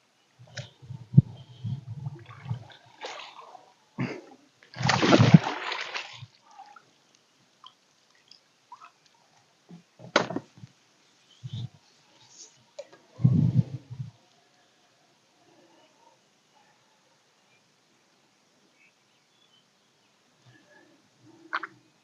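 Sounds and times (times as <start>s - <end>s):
water splashing: 2.0s - 3.7s, 4.7s - 6.9s.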